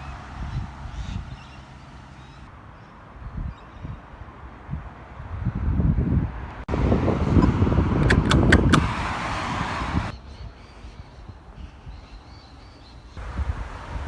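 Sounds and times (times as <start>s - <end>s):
street noise: 0.0s - 14.0s
wind rumbling on microphone: 0.0s - 14.0s
quick sharp clicks: 7.4s - 8.9s.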